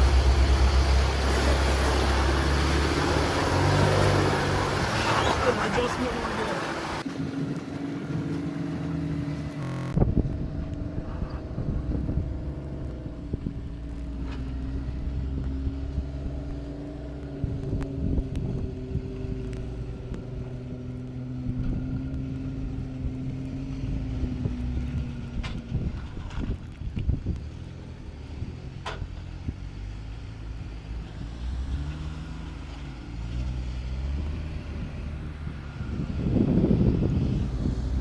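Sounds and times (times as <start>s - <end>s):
car engine at low revs: 0.0s - 7.1s, 7.8s - 38.0s
wind noise on microphone: 9.9s - 30.0s, 31.1s - 38.0s.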